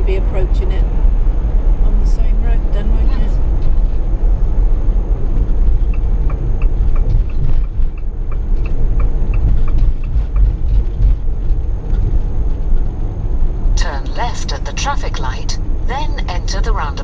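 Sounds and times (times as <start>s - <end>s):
vehicle engine and road rumble: 0.0s - 17.0s
turn signal ticking: 5.2s - 12.5s.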